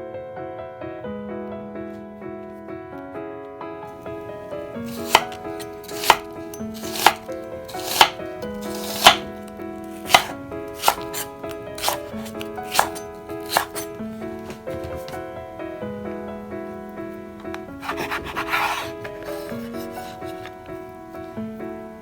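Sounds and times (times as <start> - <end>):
soft piano music: 0.0 - 22.0
knife chopping on cutting board: 4.9 - 9.3, 10.0 - 13.9, 17.8 - 20.1.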